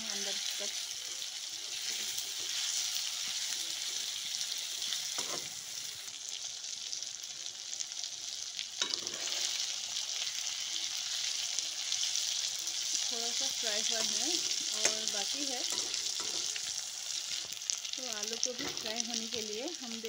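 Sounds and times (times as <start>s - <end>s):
chicken sizzling in hot oil: 0.0s - 20.0s
spatula scraping and knocking pan: 5.2s - 5.6s, 14.0s - 16.6s.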